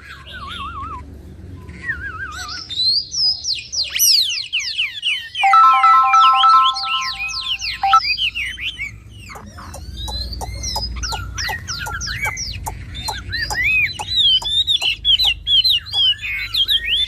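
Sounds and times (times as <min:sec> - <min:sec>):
bird singing whistled song: 0:00.2 - 0:17.0
electronic ringtone chime: 0:05.4 - 0:08.0.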